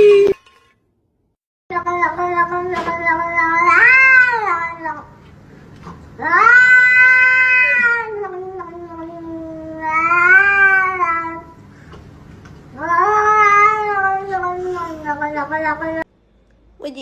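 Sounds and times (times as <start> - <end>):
cat yowling: 2.0 - 5.0, 6.2 - 11.5, 12.8 - 16.0.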